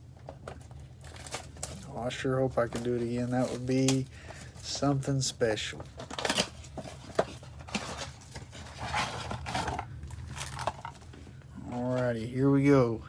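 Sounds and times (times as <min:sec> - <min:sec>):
packaging crinkling and tearing: 0:00.2 - 0:11.8.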